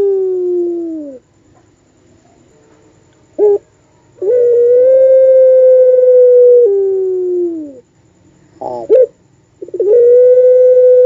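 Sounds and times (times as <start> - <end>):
dove cooing: 0.0 - 1.2, 3.4 - 7.8, 8.6 - 11.0
dove long drawn-out call: 0.0 - 1.2, 3.4 - 7.8, 8.6 - 11.0.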